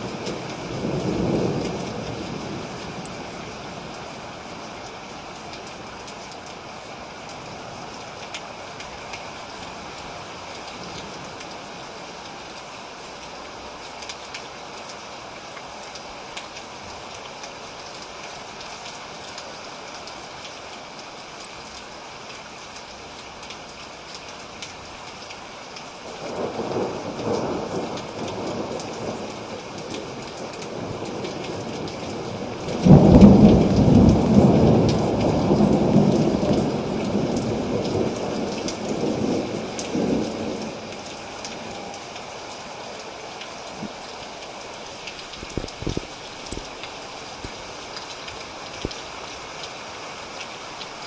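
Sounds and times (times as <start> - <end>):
thunder rumbling: 0.0 - 4.4, 26.2 - 46.8
steady rain falling: 0.0 - 51.0.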